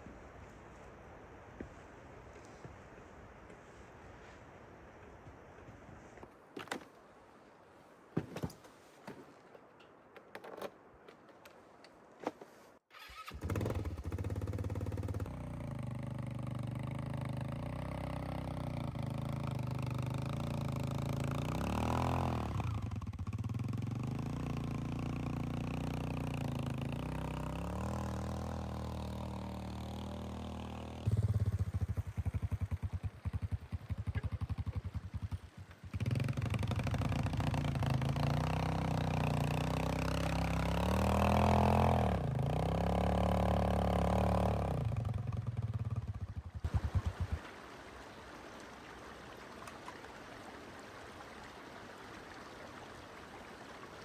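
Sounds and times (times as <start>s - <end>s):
atv engine running: 13.2s - 47.4s.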